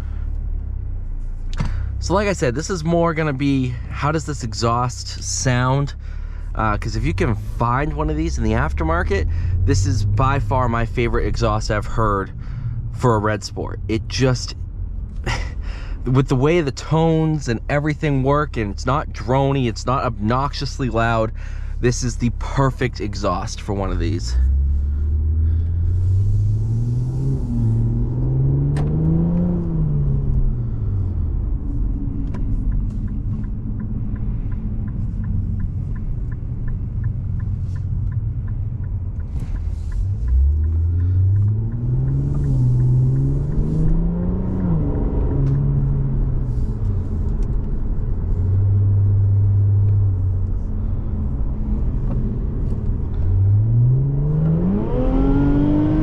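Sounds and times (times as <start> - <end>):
car engine revving: 0.0 - 56.0
fast faint ticking: 31.9 - 43.4.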